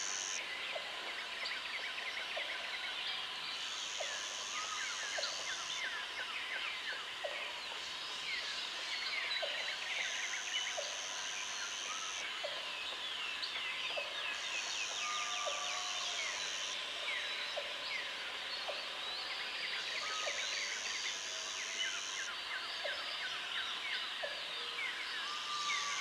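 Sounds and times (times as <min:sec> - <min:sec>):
high insect buzz: 0:00.0 - 0:00.4.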